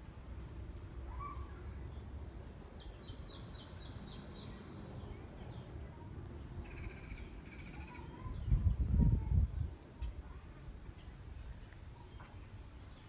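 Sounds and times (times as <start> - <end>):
small songbird calling: 1.1 - 5.7.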